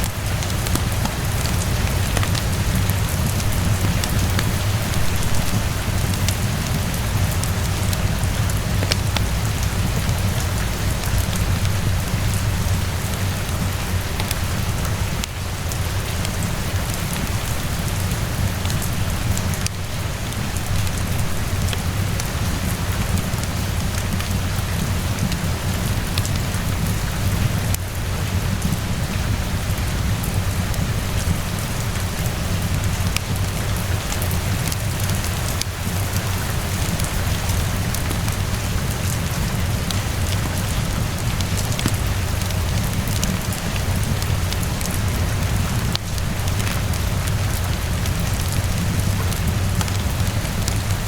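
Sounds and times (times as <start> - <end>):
wood fire crackling: 0.0 - 26.9, 32.2 - 51.0
steady rain pattering: 0.0 - 51.0.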